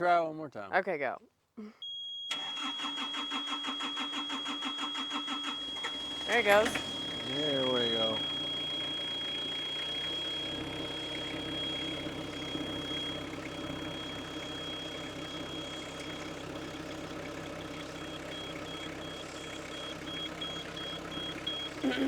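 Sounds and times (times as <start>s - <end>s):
high beeps: 1.8s - 16.5s, 17.6s - 22.0s
diesel engine idling: 5.0s - 22.0s.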